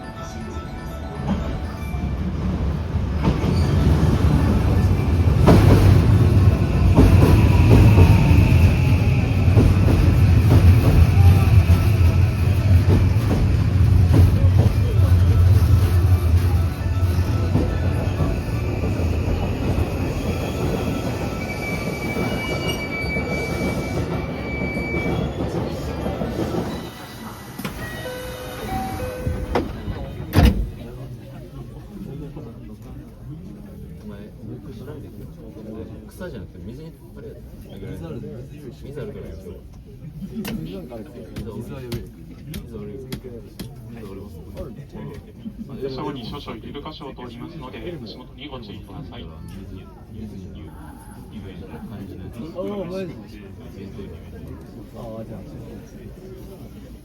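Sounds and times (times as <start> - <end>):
electric train accelerating: 0.2 - 30.0
high wheel squeal: 18.0 - 25.6.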